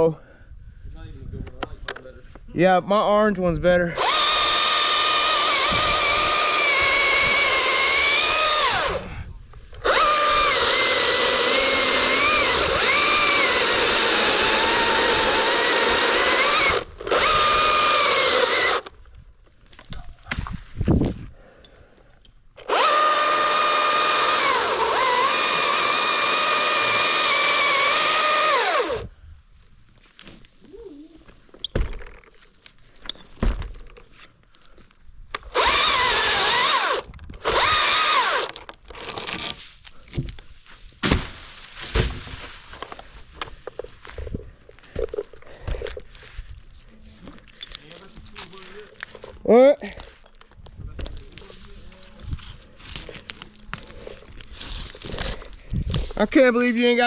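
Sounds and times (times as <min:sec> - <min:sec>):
chainsaw motor whine: 0:04.0 - 0:09.1, 0:09.8 - 0:18.9, 0:22.6 - 0:29.1, 0:35.4 - 0:38.6
knocks and rustles: 0:31.4 - 0:34.4.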